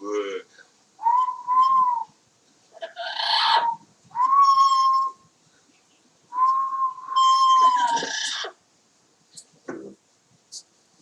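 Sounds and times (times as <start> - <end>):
parrot whistling: 1.0 - 2.1, 2.9 - 5.2, 6.4 - 8.5.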